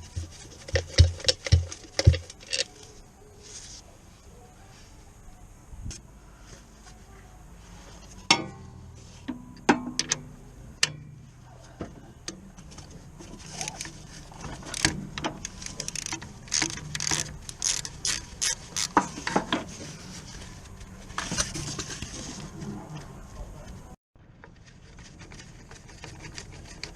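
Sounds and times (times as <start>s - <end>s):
metal tool knocks and clanks: 8.2s - 11.3s.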